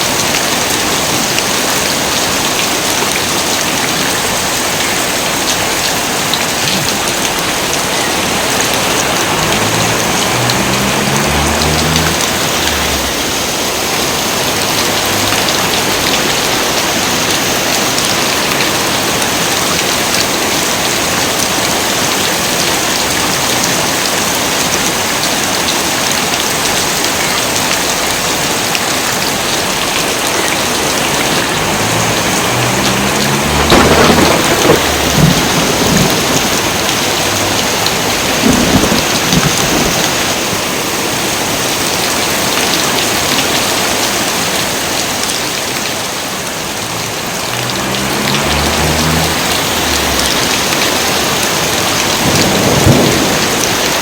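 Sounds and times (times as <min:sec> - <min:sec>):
heavy rain pouring: 0:00.0 - 0:54.0
thunder rumbling: 0:07.1 - 0:16.8, 0:30.5 - 0:40.7, 0:47.0 - 0:54.0.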